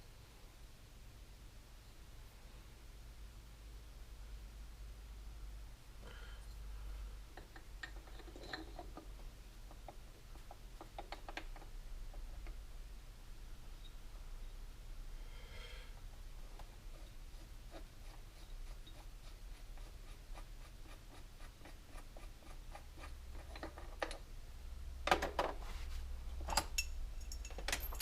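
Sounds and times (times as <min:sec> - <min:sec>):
low steady hum: 0:00.0 - 0:28.0
metal parts clicking and scraping: 0:07.4 - 0:09.1, 0:26.4 - 0:28.0
sharp metallic clinks: 0:26.5 - 0:28.0.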